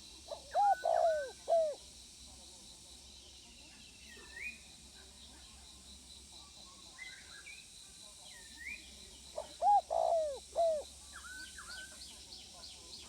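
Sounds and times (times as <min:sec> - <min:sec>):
dove cooing: 0:00.3 - 0:01.8, 0:09.4 - 0:10.8.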